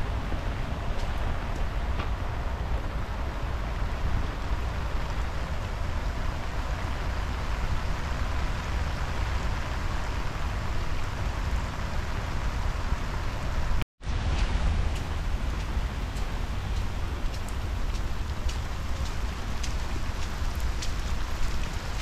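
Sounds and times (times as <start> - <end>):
rain falling on pavement: 0.0 - 22.0.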